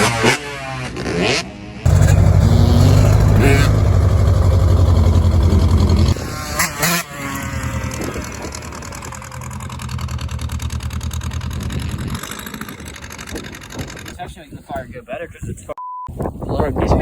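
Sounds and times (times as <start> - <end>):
vehicle engine running: 1.9 - 6.3, 7.6 - 14.2.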